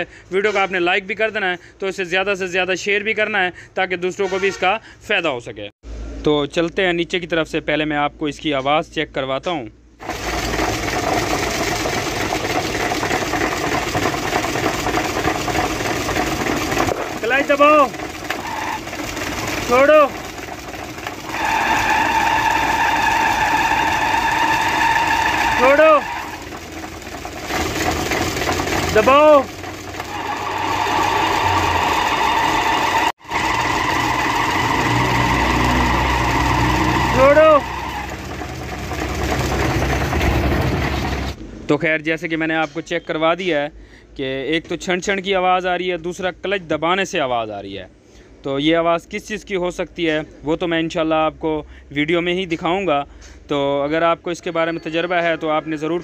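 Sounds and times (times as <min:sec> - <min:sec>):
jingling clutch clatter: 0:10.0 - 0:32.0
truck diesel engine idling: 0:10.1 - 0:41.4.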